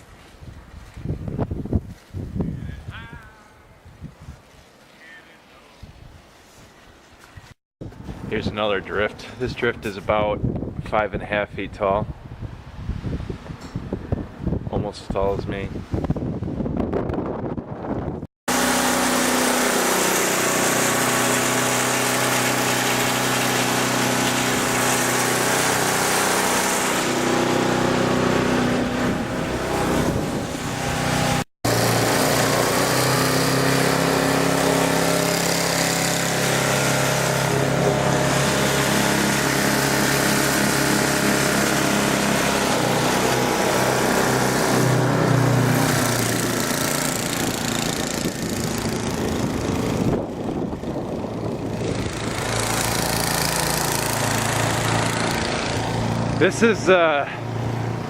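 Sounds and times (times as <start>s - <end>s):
snow blower engine running: 18.5s - 58.0s.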